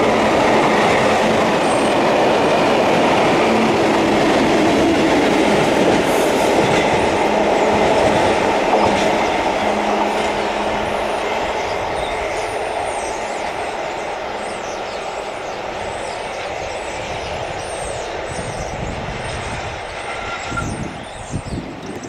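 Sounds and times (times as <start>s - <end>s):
train wheels rumbling on rail: 0.0s - 22.0s
high wheel squeals: 19.4s - 21.4s.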